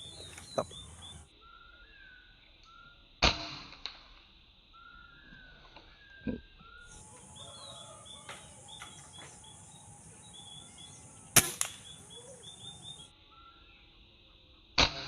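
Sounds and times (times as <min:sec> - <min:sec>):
bird chirps: 0:00.0 - 0:03.1, 0:04.7 - 0:14.7
steady high hiss: 0:06.9 - 0:14.5
gunshot: 0:11.4 - 0:12.0
small crack: 0:11.4 - 0:12.0.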